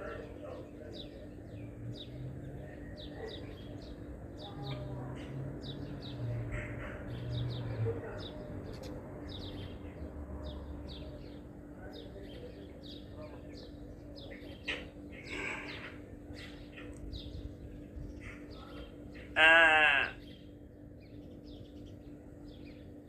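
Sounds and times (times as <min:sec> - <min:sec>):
low steady hum: 0:08.0 - 0:23.0
loud wavering animal call: 0:19.3 - 0:20.2.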